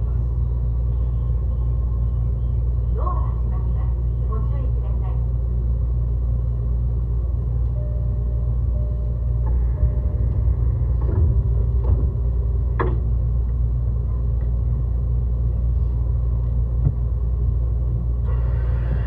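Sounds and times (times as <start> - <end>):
train running rumble: 0.0 - 19.0
sharp clicks and knocks: 10.3 - 13.6.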